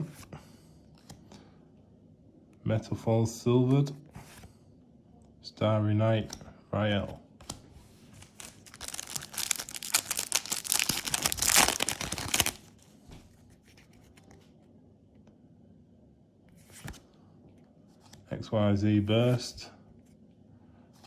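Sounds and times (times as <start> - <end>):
wrapper rustle: 8.1 - 12.8
foil wrapper tearing and crinkling: 8.2 - 12.7.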